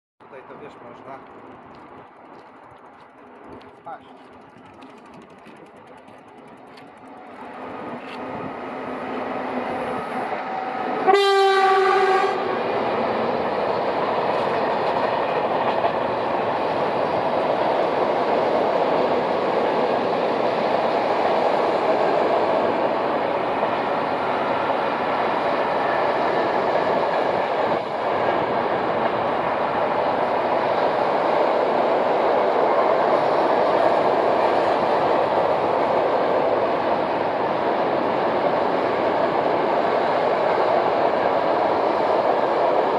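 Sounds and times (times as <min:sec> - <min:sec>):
freight train rolling on rails: 0:00.2 - 0:42.9
locomotive horn: 0:10.6 - 0:12.6.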